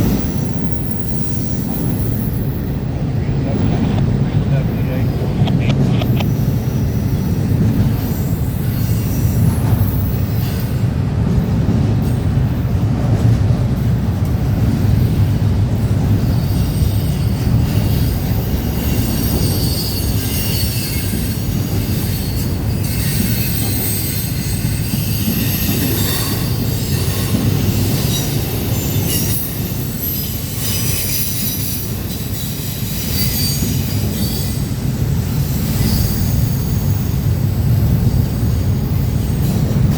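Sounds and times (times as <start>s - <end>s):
train wheels rumbling on rail: 0.0s - 39.9s
high-pitched wheel squeals: 16.3s - 34.7s.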